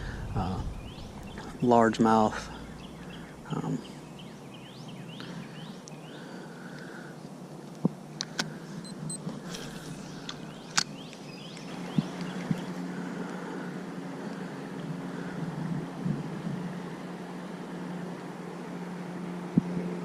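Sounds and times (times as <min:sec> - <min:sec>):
bird rising chirps: 0:00.0 - 0:06.2, 0:08.9 - 0:12.9
outdoor background noise: 0:00.0 - 0:20.0
sharp clicks: 0:09.1 - 0:11.7.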